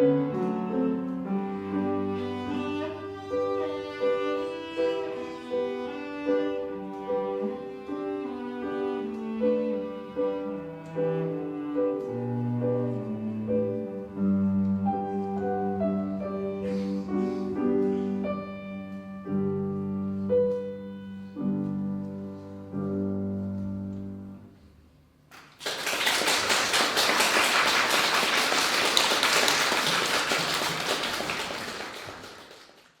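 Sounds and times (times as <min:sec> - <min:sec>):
cello playing: 0:00.0 - 0:24.2
piano playing: 0:00.0 - 0:24.6
audience applause: 0:25.3 - 0:33.0.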